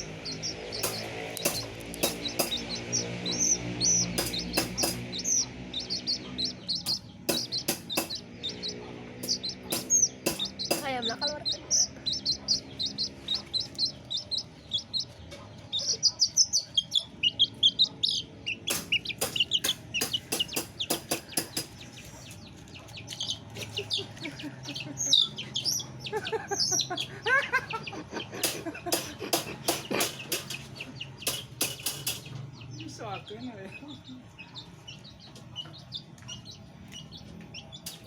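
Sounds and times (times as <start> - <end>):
chickens peeping and clucking: 0.0 - 38.0
sharp clicks or knocks: 0.7 - 3.0, 4.1 - 5.4, 6.9 - 8.3, 9.2 - 10.9, 18.7 - 21.9, 28.4 - 32.4.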